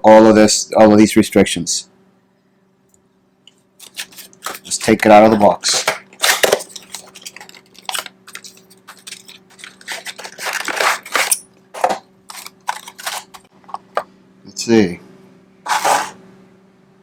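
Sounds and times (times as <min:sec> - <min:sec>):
packaging rustling and crinkling: 0:03.8 - 0:13.5.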